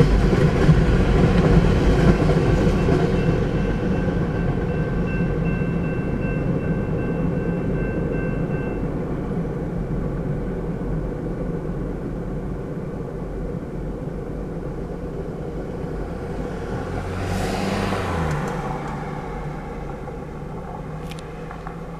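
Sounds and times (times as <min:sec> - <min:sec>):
freight cars rumbling: 0:00.0 - 0:21.9.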